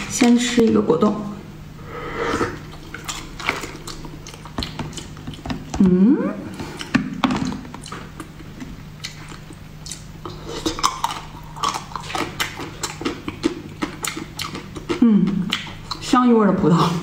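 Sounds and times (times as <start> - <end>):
wet chewing and mouth clicks: 2.6 - 5.7, 6.7 - 16.1.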